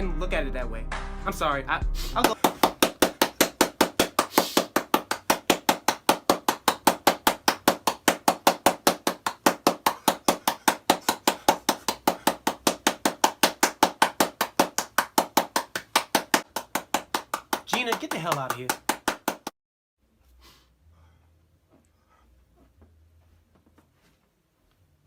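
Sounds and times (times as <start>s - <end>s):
fast even sharp knocks: 2.2s - 19.5s.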